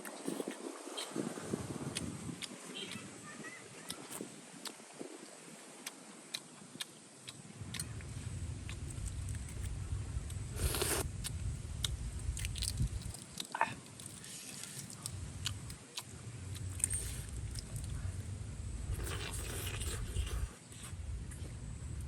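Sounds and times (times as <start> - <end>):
low rumble: 7.6 - 13.2
crunching and scraping: 8.7 - 18.1.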